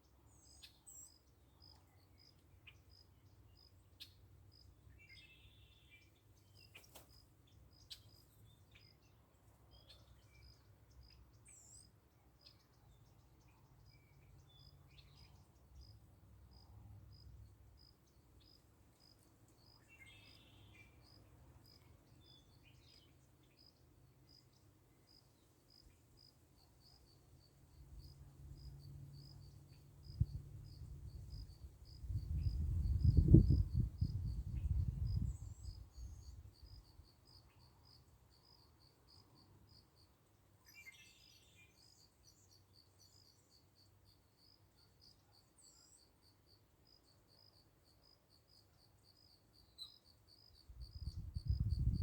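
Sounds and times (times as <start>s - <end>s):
cricket chirping: 13.8s - 23.0s, 23.6s - 52.0s.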